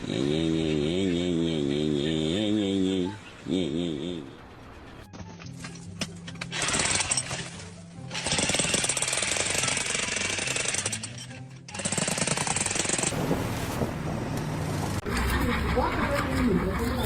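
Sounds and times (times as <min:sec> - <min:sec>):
background music: 0:00.2 - 0:13.1.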